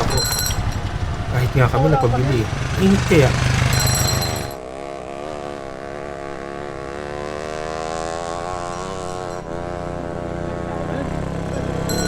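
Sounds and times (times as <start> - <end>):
motor droning: 0.0 - 4.6, 11.1 - 12.0.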